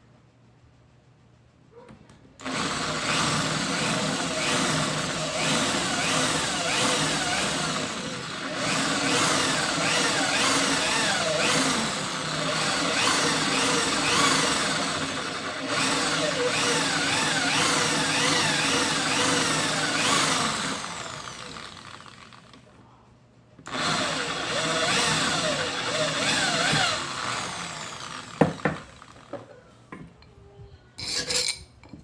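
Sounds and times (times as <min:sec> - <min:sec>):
drill press whining: 0:02.4 - 0:22.7, 0:23.6 - 0:29.5.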